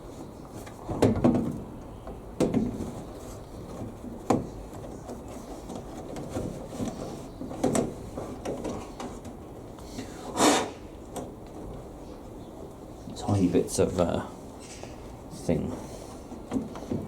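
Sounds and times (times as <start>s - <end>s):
panel parts knocking and clunking: 0.6s - 3.1s, 3.7s - 9.4s.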